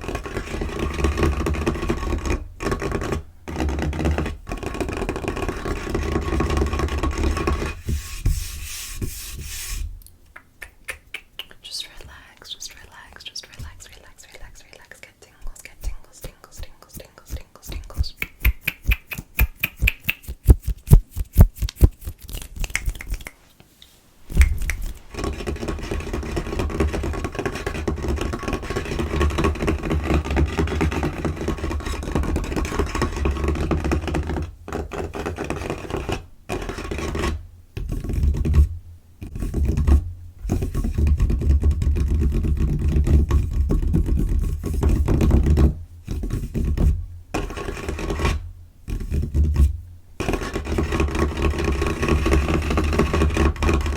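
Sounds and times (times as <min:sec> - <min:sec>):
fingernails scratching a tabletop: 0:00.0 - 0:09.9, 0:24.8 - 0:53.9
fingers tapping on a table: 0:17.1 - 0:20.8.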